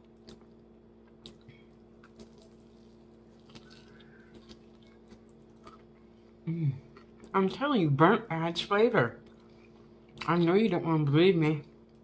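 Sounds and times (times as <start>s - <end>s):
faint chewing: 0.0s - 7.4s, 9.2s - 10.5s
low electrical hum: 0.0s - 12.0s.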